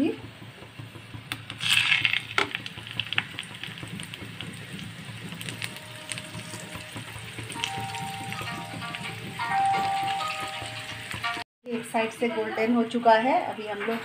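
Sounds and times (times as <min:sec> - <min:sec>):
tacos frying in oil: 0:00.0 - 0:12.2
background music with sustained tones: 0:05.4 - 0:11.4.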